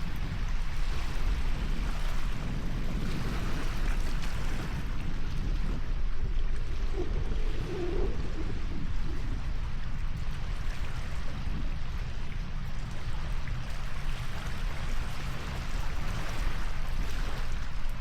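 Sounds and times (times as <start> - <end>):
low rumble: 0.0 - 13.9
rushing water: 0.0 - 18.0.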